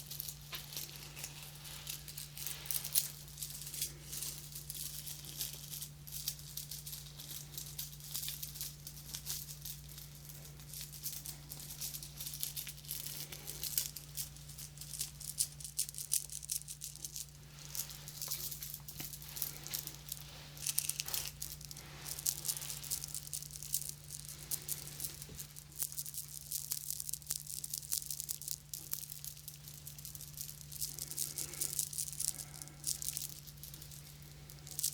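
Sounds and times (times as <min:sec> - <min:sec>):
crackly rustling and scratching: 0:00.0 - 0:34.9
low electrical hum: 0:00.0 - 0:34.9.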